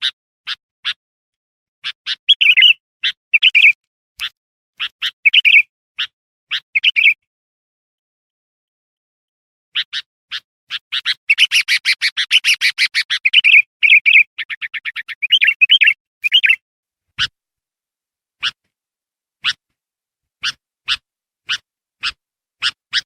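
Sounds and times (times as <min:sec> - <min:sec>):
bird chirping song: 0:00.0 - 0:01.0, 0:01.8 - 0:07.3, 0:09.7 - 0:16.6, 0:18.4 - 0:18.6, 0:20.4 - 0:23.0.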